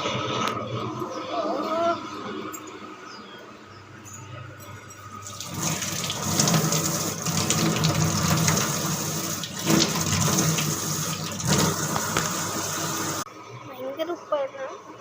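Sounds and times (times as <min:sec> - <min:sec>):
water running from a tap: 0:05.2 - 0:13.3.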